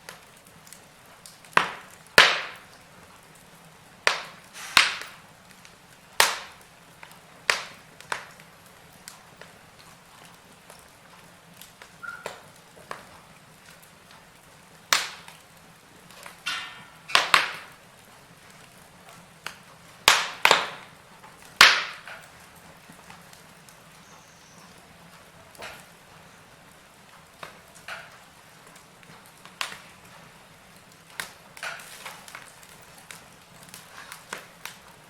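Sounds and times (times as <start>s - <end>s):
loud sharp pops from logs: 0.0s - 2.8s, 4.0s - 9.5s, 11.6s - 13.8s, 14.9s - 15.5s, 16.1s - 17.8s, 18.6s - 23.8s, 25.5s - 26.0s, 27.3s - 30.2s, 30.9s - 35.0s
wood fire crackling: 0.0s - 35.0s
faint hiss: 3.6s - 9.8s.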